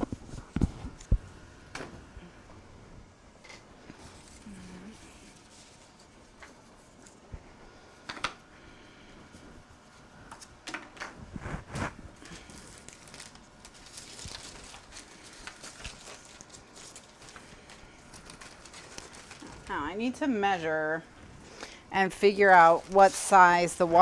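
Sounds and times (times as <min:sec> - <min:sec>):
paper sheets shuffling: 0:11.3 - 0:19.8, 0:22.0 - 0:24.0.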